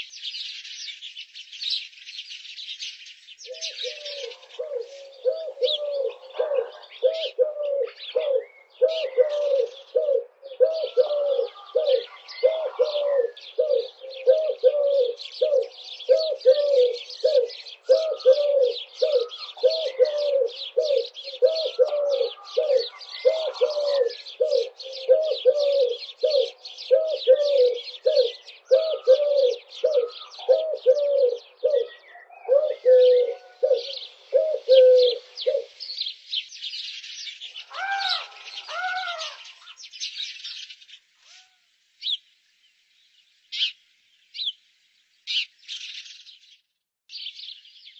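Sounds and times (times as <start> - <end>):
bird hooting: 3.5 - 35.8, 37.7 - 39.5.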